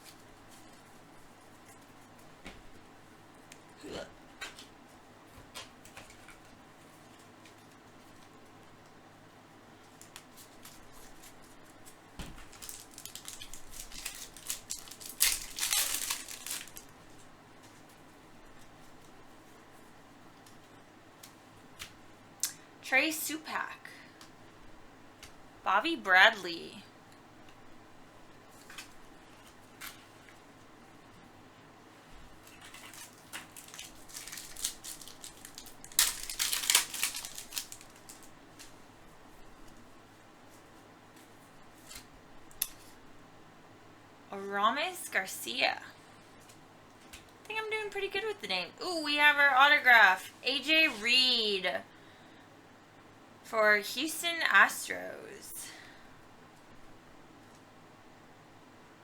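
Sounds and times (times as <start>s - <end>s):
foil wrapper crinkling: 9.9s - 18.0s, 32.3s - 38.9s.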